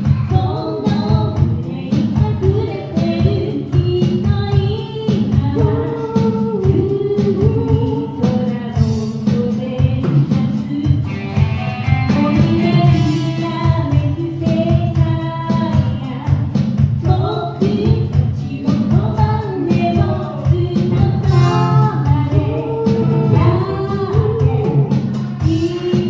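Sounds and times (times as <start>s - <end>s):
music accompaniment with steady beat: 0.0s - 26.0s
person singing: 12.0s - 16.2s, 17.2s - 26.0s.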